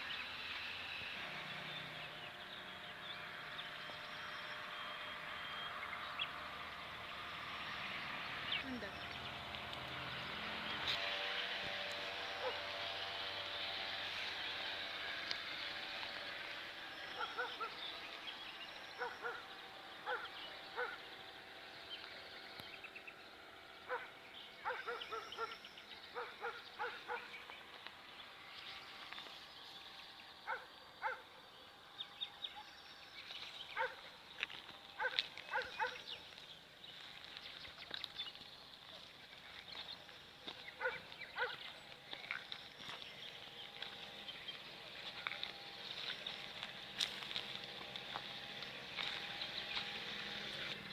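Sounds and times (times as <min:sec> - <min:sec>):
birds chirping: 0:00.0 - 0:50.9.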